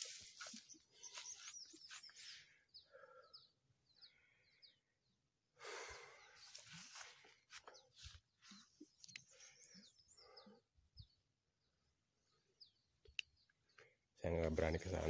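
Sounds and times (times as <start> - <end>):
rustling swish of grass: 0.0 - 0.8
small bird chirping: 0.0 - 5.2, 6.0 - 14.0.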